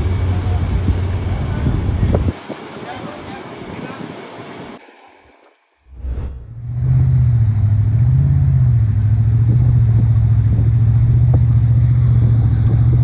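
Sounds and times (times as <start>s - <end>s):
motor engine droning: 0.0s - 2.4s, 5.9s - 13.0s.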